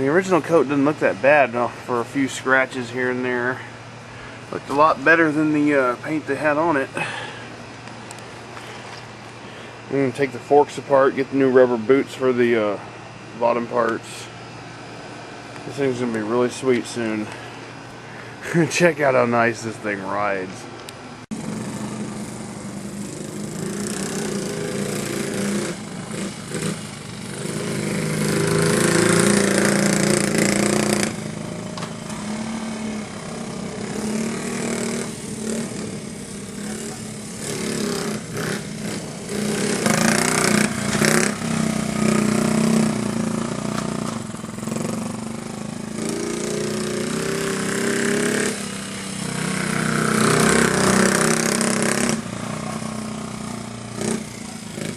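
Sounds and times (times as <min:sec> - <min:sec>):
small motorbike engine running: 0:21.3 - 0:54.9.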